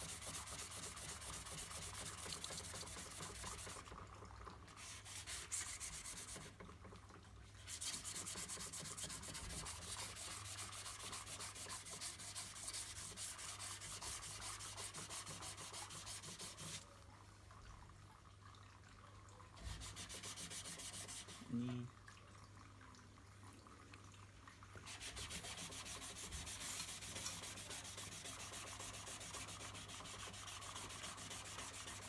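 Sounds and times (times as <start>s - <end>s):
sandpaper rubbing on filler: 0.0s - 3.8s, 4.8s - 6.5s, 7.7s - 16.8s, 19.6s - 21.5s, 24.9s - 32.0s.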